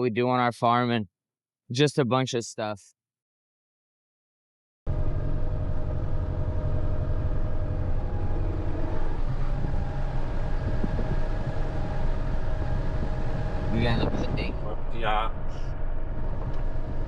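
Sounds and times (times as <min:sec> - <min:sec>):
tractor engine running: 0:04.9 - 0:17.0.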